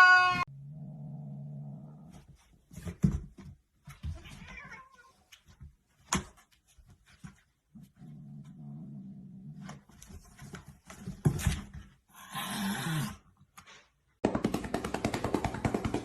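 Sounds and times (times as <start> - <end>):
cat meowing: 0.0 - 0.5, 4.2 - 5.2.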